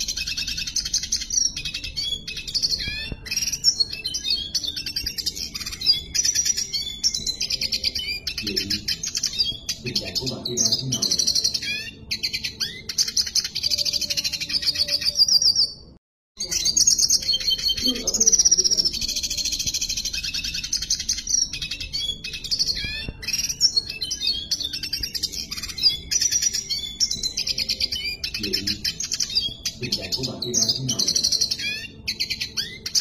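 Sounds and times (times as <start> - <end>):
bird singing rapid twittering: 0.0 - 33.0.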